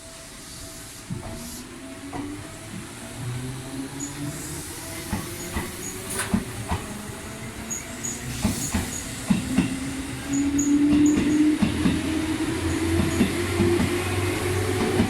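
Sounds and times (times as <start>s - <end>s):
train wheels clacking over joints: 5.0s - 7.1s, 7.7s - 14.0s.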